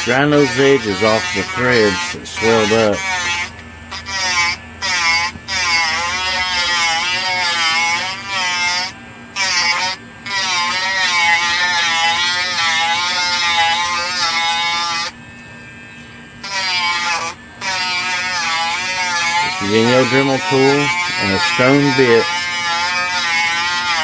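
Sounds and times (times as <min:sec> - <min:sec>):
rotary tool grinding plastic: 0:00.0 - 0:15.2, 0:16.4 - 0:24.0.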